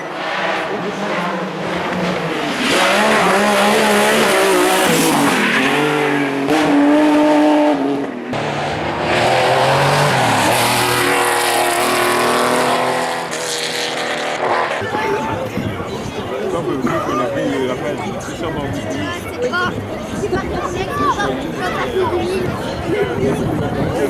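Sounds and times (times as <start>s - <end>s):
rally car engine revving: 0.0s - 14.9s.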